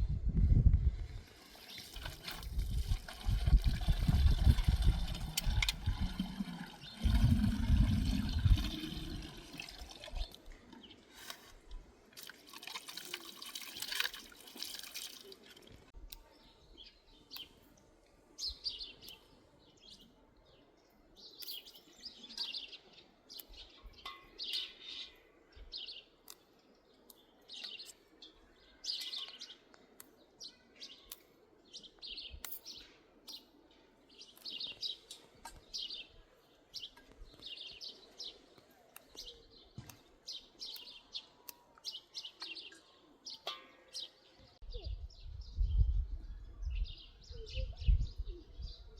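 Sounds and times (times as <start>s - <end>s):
small birds chirping: 13.1s - 48.9s.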